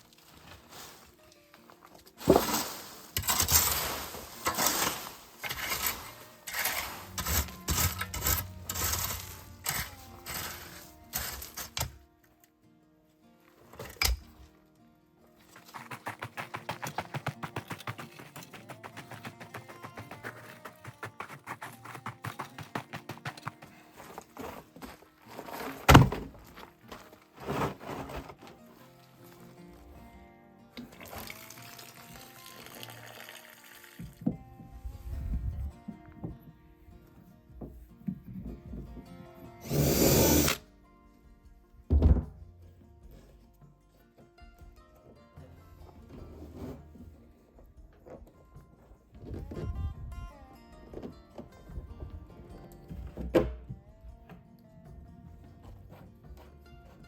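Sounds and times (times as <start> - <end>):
plucked background music: 0.0 - 57.0
knocks clatter and scraping: 1.8 - 12.0, 15.4 - 30.0, 41.9 - 50.1
heavy thunk: 25.9 - 26.4, 41.9 - 42.4.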